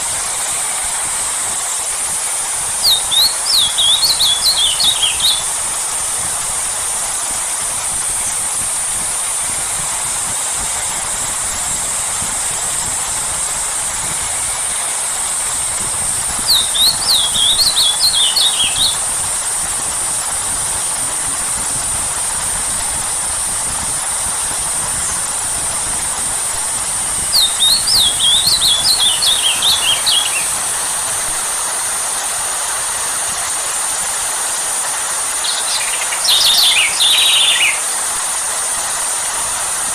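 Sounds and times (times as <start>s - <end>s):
rain hiss: 0.0s - 39.9s
songbird trilling: 1.6s - 5.8s, 14.4s - 19.8s, 27.3s - 31.1s, 35.2s - 38.1s.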